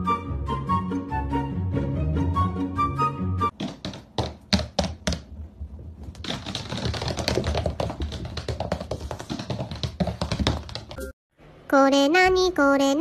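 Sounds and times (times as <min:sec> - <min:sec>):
background music: 0:00.0 - 0:03.6
rapid taps and clicks: 0:03.6 - 0:05.3, 0:06.1 - 0:11.0.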